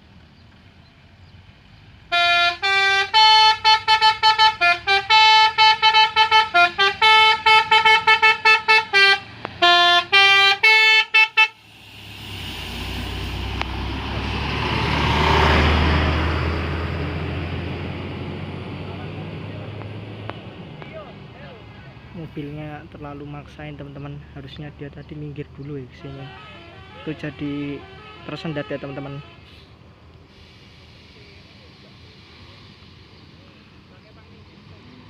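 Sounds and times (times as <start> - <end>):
bus horn playing a tune: 2.1 - 11.9, 26.0 - 29.7
vehicle driving past: 11.6 - 22.4.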